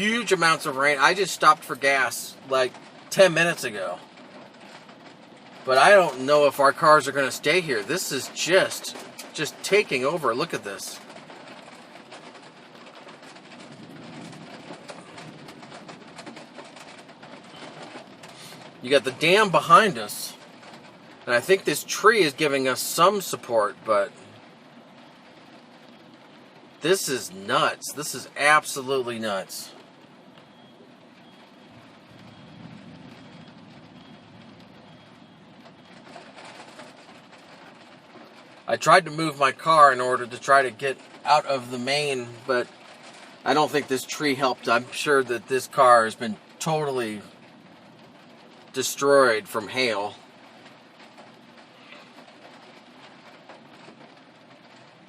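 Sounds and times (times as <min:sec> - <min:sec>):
heavy rain and hail pelting: 0:00.0 - 0:55.0
low rumble: 0:11.0 - 0:19.7.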